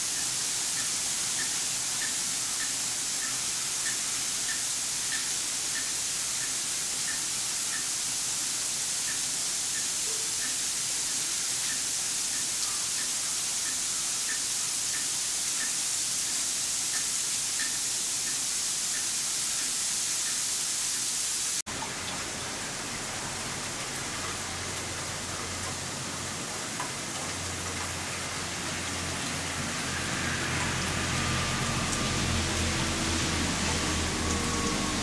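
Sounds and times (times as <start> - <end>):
sleet and wind hiss: 0.0 - 21.6
faint ticks: 0.1 - 7.9, 9.0 - 10.6, 11.6 - 21.1.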